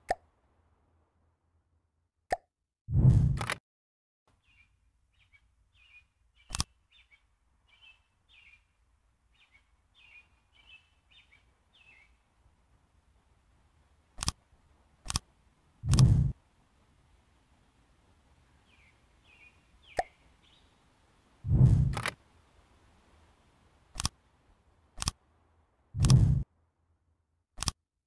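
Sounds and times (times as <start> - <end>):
sharp clicks: 3.4 - 3.6, 6.5 - 6.7, 14.2 - 14.4, 15.0 - 16.4, 21.6 - 22.2, 23.9 - 24.2, 25.0 - 25.2, 26.0 - 26.4, 27.6 - 27.8
high bird chirps: 18.7 - 20.7
low thump: 21.5 - 22.0.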